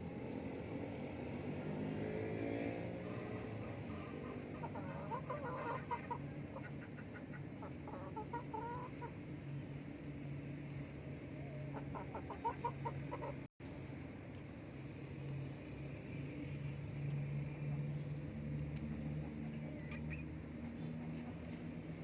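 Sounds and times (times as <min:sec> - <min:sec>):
chickens clucking: 0:03.1 - 0:09.2, 0:11.4 - 0:13.5.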